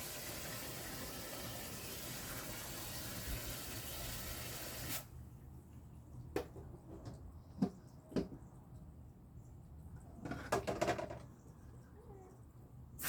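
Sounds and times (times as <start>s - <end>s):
water running into a bucket: 0.0s - 5.1s.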